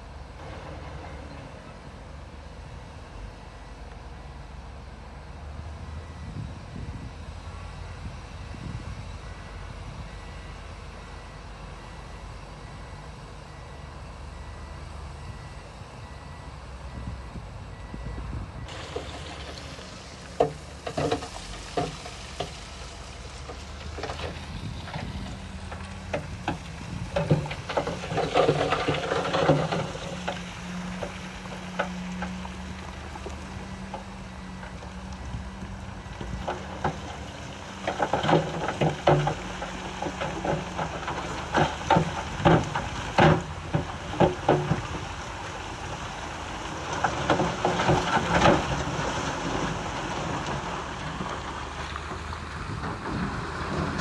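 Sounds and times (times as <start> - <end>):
diesel machinery rumbling: 0.0 - 54.0
knocks clanks and rattling: 18.6 - 22.6, 23.4 - 34.9, 36.2 - 54.0.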